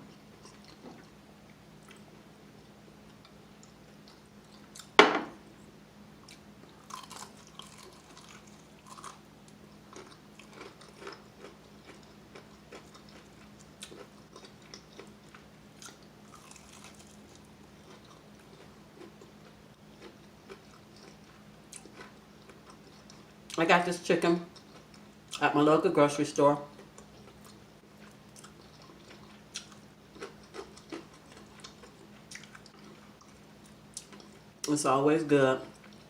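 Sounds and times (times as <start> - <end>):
crackly chewing: 0.1 - 5.0, 6.2 - 23.6, 24.4 - 25.4, 26.6 - 34.7, 35.6 - 36.0
crunch of biting fried chicken: 6.3 - 9.2, 9.9 - 19.4.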